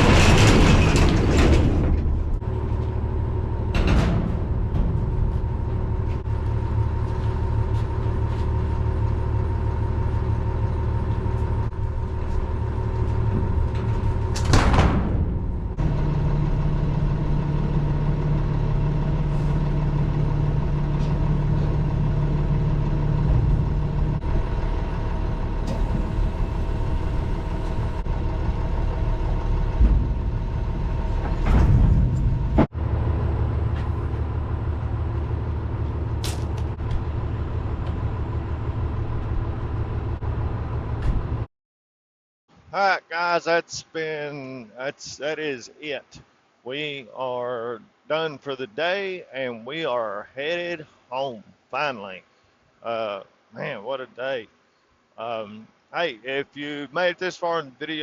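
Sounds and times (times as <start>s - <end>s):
truck engine running: 0.0s - 41.5s.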